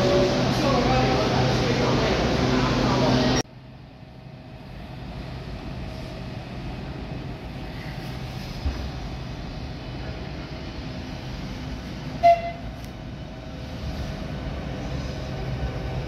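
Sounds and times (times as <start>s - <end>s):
train rumbling slowly: 0.0s - 16.0s
train horn toot: 12.2s - 12.9s.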